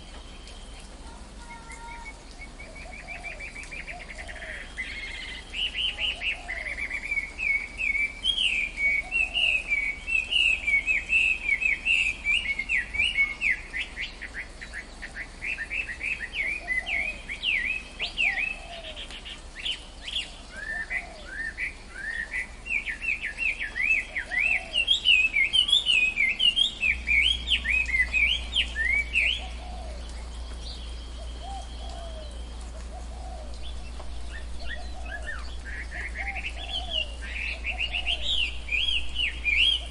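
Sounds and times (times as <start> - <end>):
birds chirping: 0.0 - 39.9
faint low bird calls: 0.0 - 39.9.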